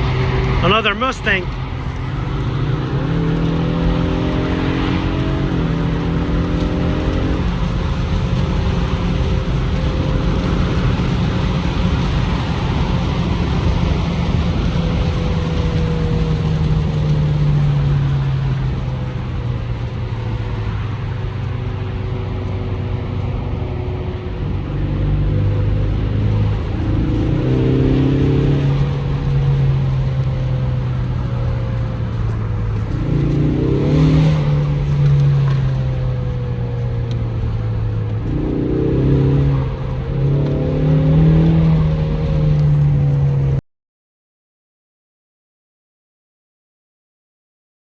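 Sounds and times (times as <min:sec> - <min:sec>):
car engine running: 0:00.0 - 0:43.6
wind and road noise: 0:00.0 - 0:43.6.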